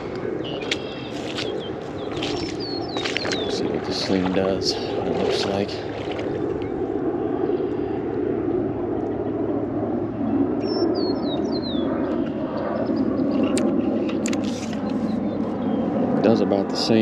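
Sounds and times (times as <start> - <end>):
low outdoor drone: 0.0 - 17.0
bird chirping: 0.4 - 4.2, 10.6 - 11.9.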